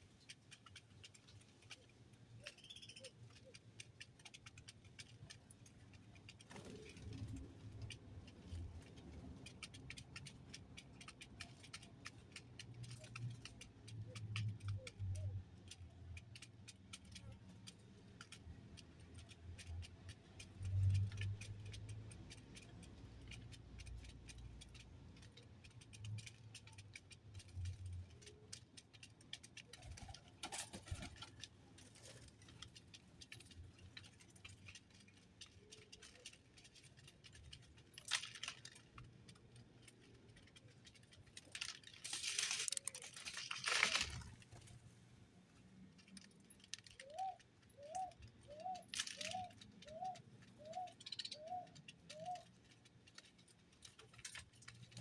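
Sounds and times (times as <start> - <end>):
light ticks and rattles: 0.0 - 55.0
faint bird chirps: 2.4 - 3.6, 46.9 - 52.8.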